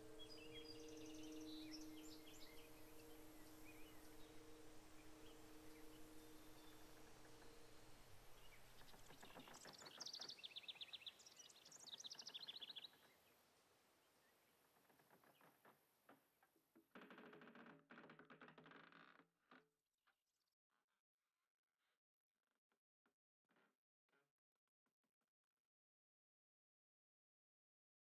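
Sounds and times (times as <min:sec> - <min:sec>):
low rasping creak-like pulsing: 0:00.0 - 0:10.7, 0:14.7 - 0:19.7
birds twittering: 0:00.0 - 0:13.2.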